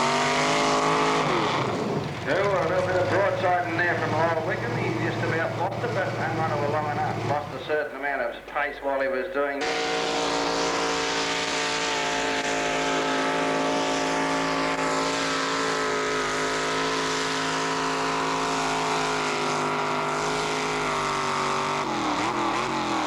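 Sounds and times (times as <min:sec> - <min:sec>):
tractor engine under load: 0:00.0 - 0:07.9.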